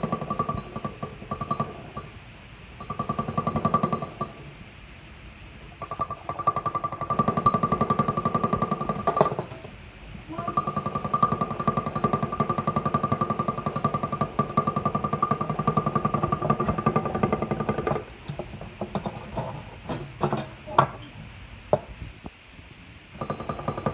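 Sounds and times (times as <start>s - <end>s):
ringing tone: 0.0s - 2.1s, 10.3s - 18.1s
engine piston knocking: 0.0s - 4.6s, 5.6s - 19.4s, 23.2s - 23.9s
scattered clicks and knocks: 0.0s - 4.6s, 5.6s - 21.0s, 23.2s - 23.9s.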